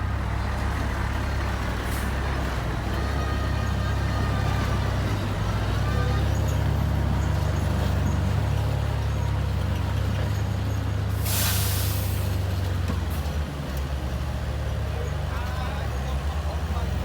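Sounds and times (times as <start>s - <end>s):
bulldozer diesel engine droning: 0.0s - 17.0s
short burst of hiss: 11.2s - 12.2s.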